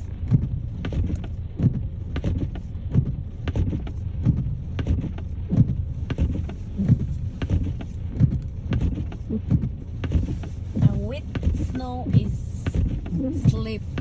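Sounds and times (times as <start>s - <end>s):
car cabin rumble: 0.0s - 14.0s
soft regular thumps: 0.0s - 14.0s.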